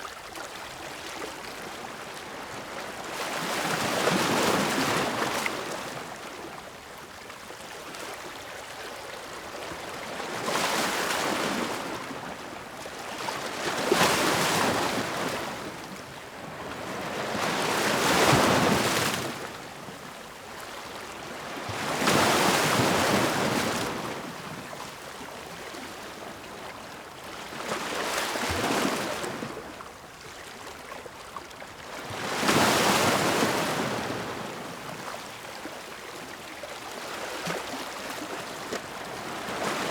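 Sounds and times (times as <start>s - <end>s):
ocean waves breaking on shore: 32.0s - 35.3s.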